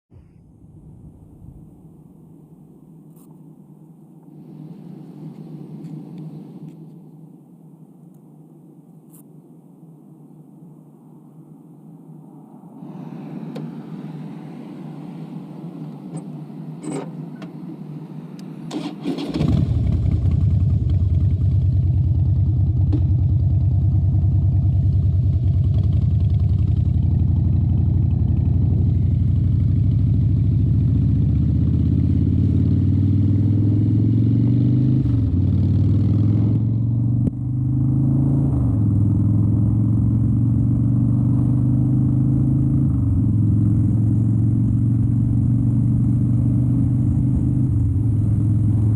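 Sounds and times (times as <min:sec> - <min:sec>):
motorcycle engine starting and running: 0:18.6 - 0:48.9.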